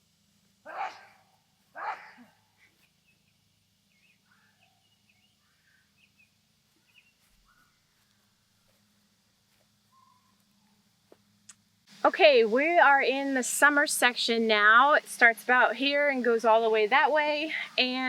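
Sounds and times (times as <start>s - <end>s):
faint low hum: 0.0s - 18.0s
faint bird chirps: 1.8s - 8.7s, 9.8s - 10.9s.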